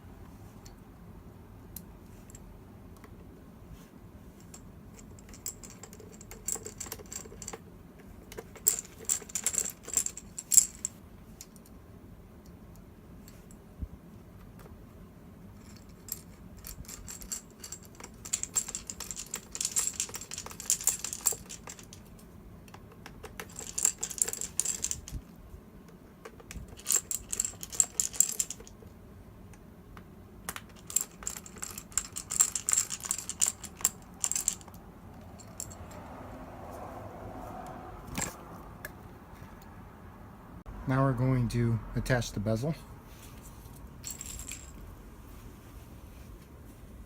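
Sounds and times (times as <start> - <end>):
small screws clicking and rattling: 4.4 - 11.8, 15.6 - 36.1, 38.1 - 38.6, 43.8 - 44.8.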